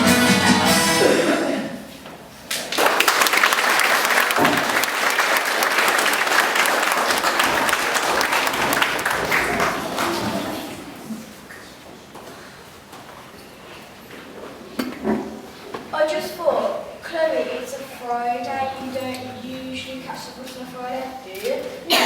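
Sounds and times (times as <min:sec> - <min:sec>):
song ending notes: 0:00.0 - 0:01.5
audience applauding: 0:02.5 - 0:11.2.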